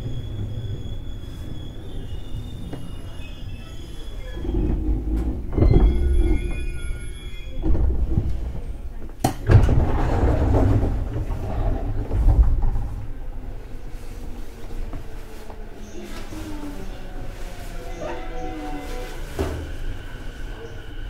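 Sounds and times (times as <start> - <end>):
high brake squeal: 0.0 - 7.8, 17.8 - 21.0
train rumble: 0.0 - 21.0
air rush of sliding doors opening: 4.1 - 14.9.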